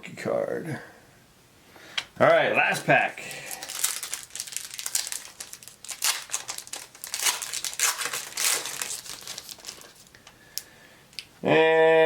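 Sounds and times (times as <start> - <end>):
wrapper crinkling being torn open: 3.3 - 10.7.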